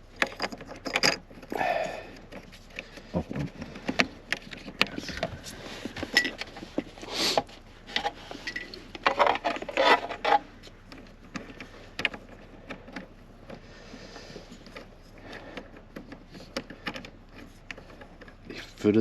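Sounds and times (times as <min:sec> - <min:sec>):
tools clattering: 0:00.1 - 0:02.5, 0:04.4 - 0:07.0, 0:07.8 - 0:13.1
light clicks and knocks of tools: 0:00.1 - 0:19.0.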